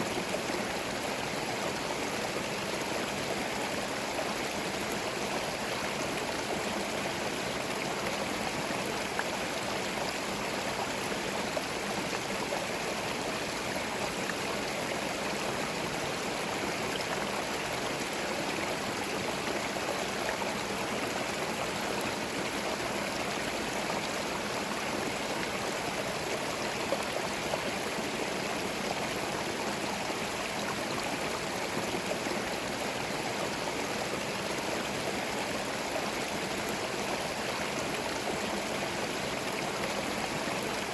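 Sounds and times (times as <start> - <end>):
stream burbling over stones: 0.0 - 40.9.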